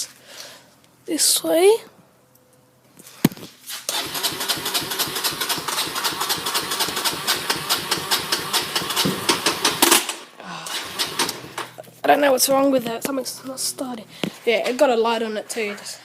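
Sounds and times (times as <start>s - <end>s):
electric starter cranking engine: 3.9s - 11.8s.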